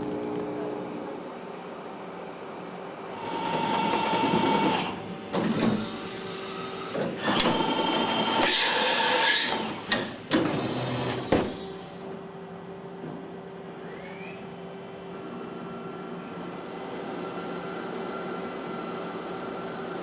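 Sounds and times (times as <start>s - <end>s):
machine whine: 13.6s - 20.0s.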